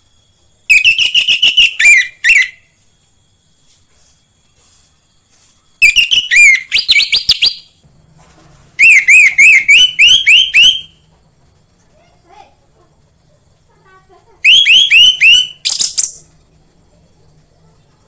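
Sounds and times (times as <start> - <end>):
thrush singing whistled notes: 0.2 - 2.8, 5.7 - 7.8, 8.8 - 11.1, 14.4 - 16.4.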